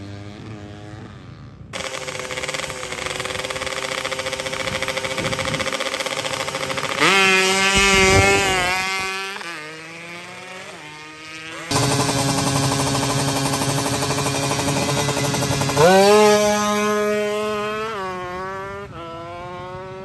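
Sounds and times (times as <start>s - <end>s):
motorcycle engine at high revs: 0.0s - 20.0s.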